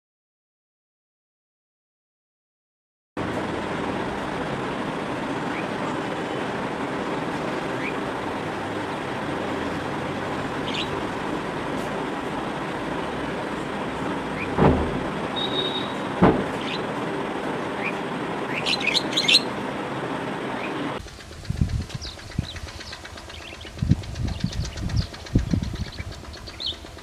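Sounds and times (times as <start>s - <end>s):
road traffic noise: 3.2s - 27.0s
faint bird chirps: 10.6s - 11.1s, 15.3s - 16.9s, 17.8s - 19.6s
loud thump: 14.3s - 16.9s.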